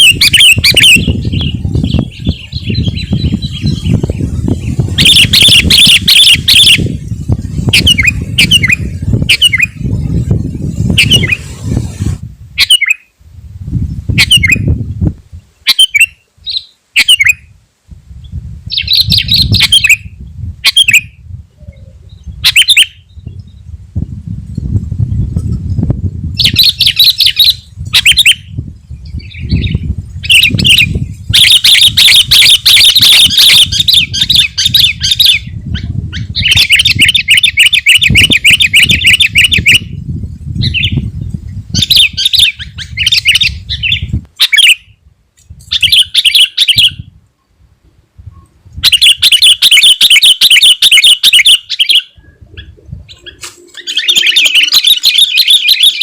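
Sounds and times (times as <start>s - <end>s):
bird trilled chattering: 53.2s - 56.0s.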